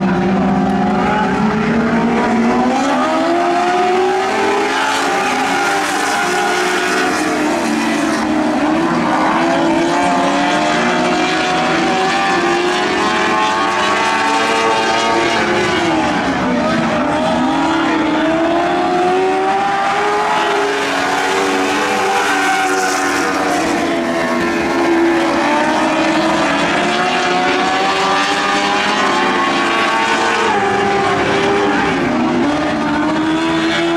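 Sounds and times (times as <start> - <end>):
racing car engines: 0.0 - 33.9.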